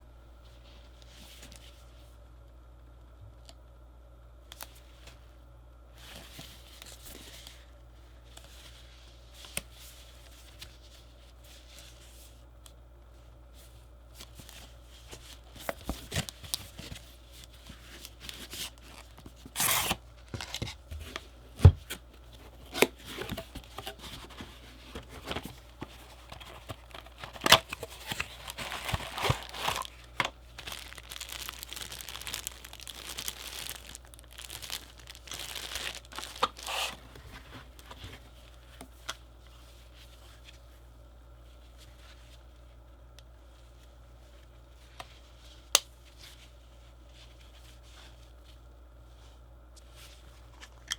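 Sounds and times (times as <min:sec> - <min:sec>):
wrapping tearing and crinkling: 0:14.2 - 0:21.2, 0:22.2 - 0:38.6.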